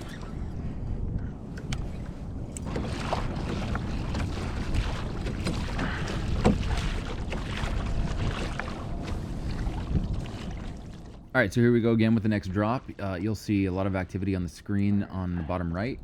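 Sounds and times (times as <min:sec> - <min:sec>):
water sloshing against kayak hull: 0:00.0 - 0:14.5
wind rumbling on microphone: 0:00.0 - 0:15.1
small knocks and splashes: 0:02.5 - 0:11.3.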